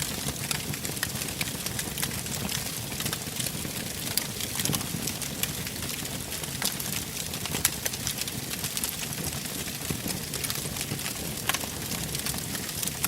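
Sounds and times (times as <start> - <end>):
low rumble of flames: 0.0 - 13.0
wood fire crackling and popping: 0.0 - 13.0.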